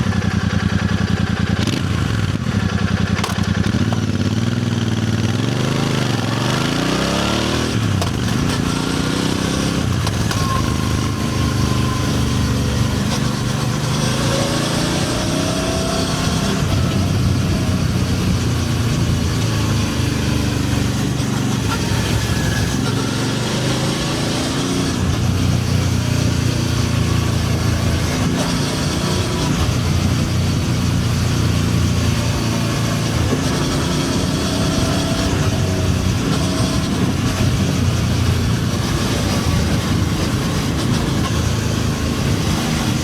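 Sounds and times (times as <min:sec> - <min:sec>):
motorcycle engine idling: 0:00.0 - 0:06.0.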